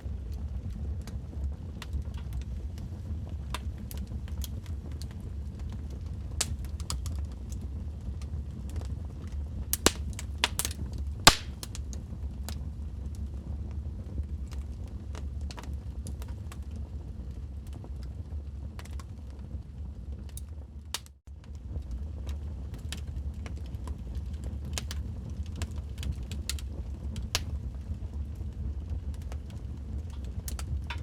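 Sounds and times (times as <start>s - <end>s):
low rumble of flames: 0.0s - 31.0s
log fire crackling and popping: 1.0s - 7.7s, 8.7s - 12.5s, 21.7s - 31.0s.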